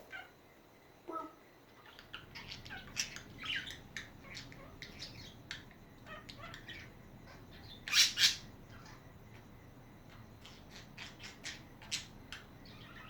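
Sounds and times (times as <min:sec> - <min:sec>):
budgerigars chattering: 0:01.8 - 0:09.0, 0:10.4 - 0:13.0
loud bird squawks: 0:06.0 - 0:09.0.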